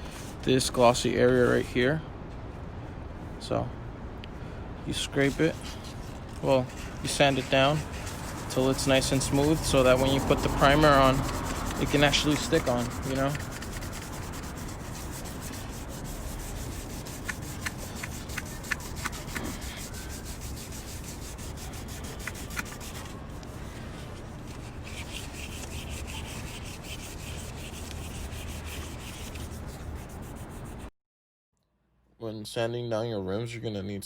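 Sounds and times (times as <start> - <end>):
sandpaper rasping over metal: 5.1 - 30.9.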